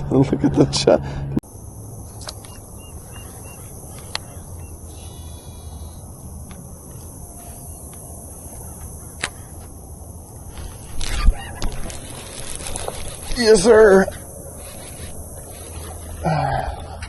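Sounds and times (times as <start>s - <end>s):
high-pitched insect drone: 1.4s - 17.0s
sharp clicks: 2.1s - 2.6s
bird chirps: 2.1s - 6.3s.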